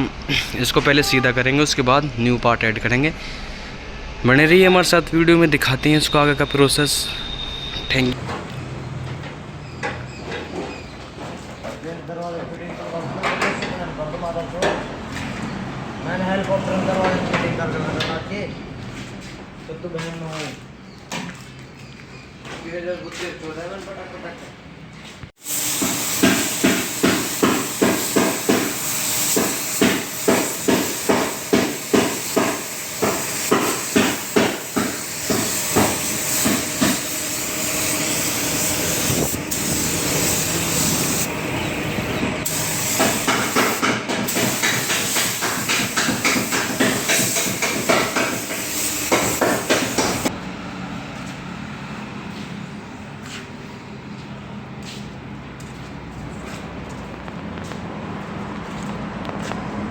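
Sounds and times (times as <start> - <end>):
steady hiss: 25.4 - 41.3, 42.5 - 50.3.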